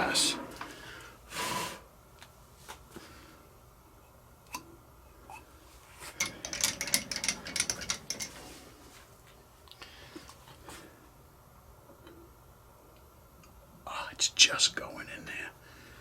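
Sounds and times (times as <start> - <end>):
metal parts rattling: 6.2 - 8.4
metallic clicks of tools: 6.2 - 8.4.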